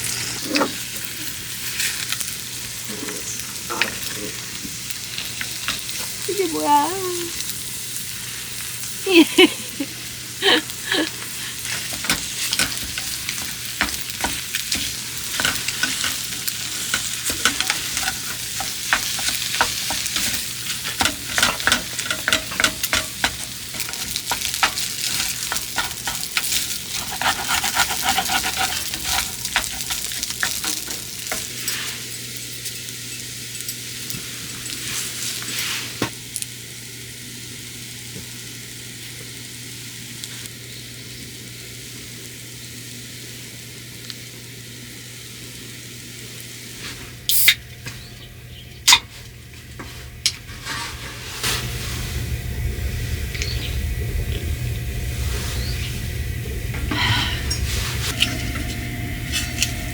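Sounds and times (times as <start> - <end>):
food sizzling in a pan: 0.0 - 59.9
utensil clicking and scraping: 11.6 - 31.6.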